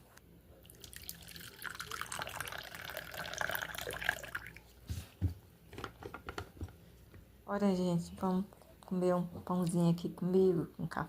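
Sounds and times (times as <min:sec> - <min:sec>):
coffee pouring into cup: 0:00.6 - 0:04.7.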